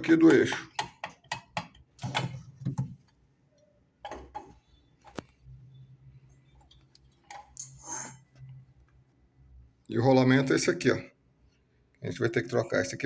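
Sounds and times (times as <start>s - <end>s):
metal part scraping: 7.6s - 8.3s.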